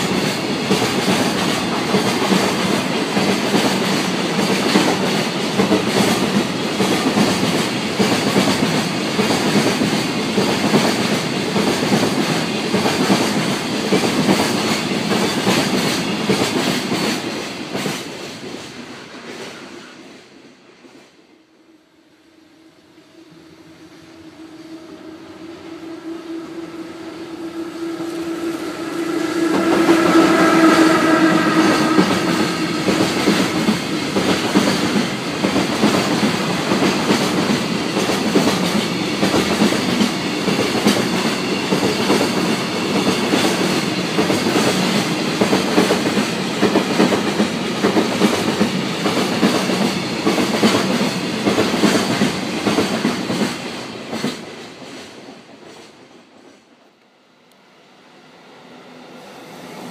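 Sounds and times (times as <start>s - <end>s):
train wheels clattering over rails: 0.0s - 21.2s, 27.4s - 56.7s
electric locomotive hum: 21.2s - 54.8s, 56.6s - 59.9s.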